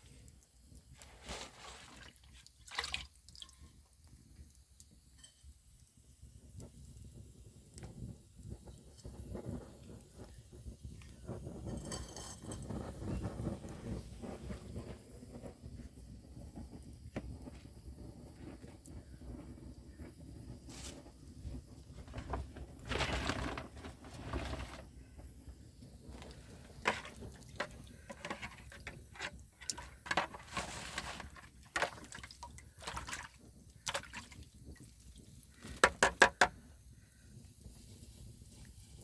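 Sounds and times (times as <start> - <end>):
liquid pouring and splashing: 1.2 - 3.8, 26.8 - 36.0.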